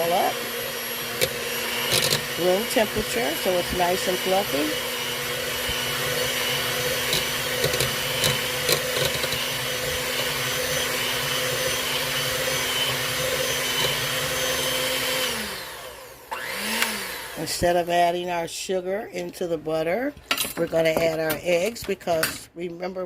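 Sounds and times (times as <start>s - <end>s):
electric mixer whipping butter: 0.0s - 18.3s.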